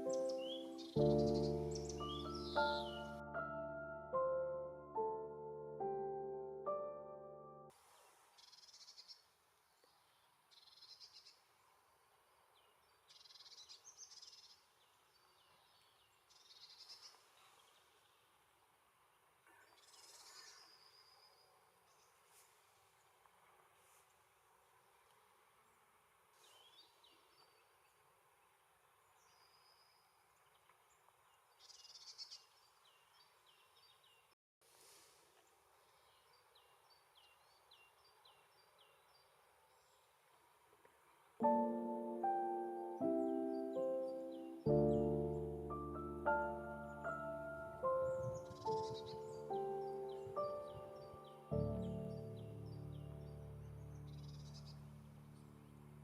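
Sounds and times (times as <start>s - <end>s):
songbird chatter: 46.3s - 55.7s.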